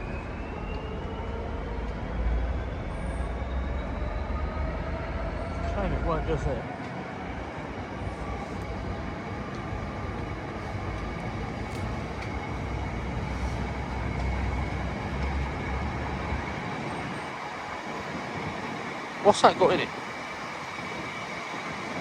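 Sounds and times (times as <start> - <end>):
train rumbling past: 0.0 - 22.0.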